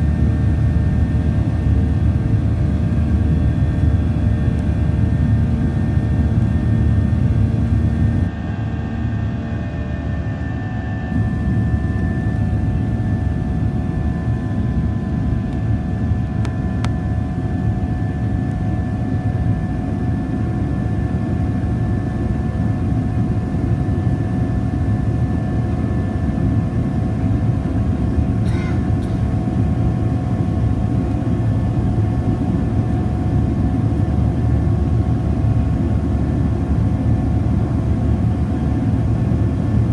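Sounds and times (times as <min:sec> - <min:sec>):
jet engine whining tones: 0:00.0 - 0:20.3
jet engines roaring: 0:00.0 - 0:39.9.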